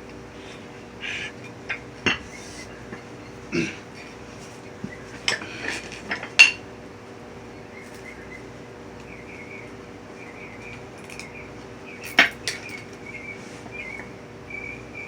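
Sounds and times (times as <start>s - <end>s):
faint steady hum: 0.0s - 15.0s
sharp metallic clinks and knocks: 12.0s - 12.9s.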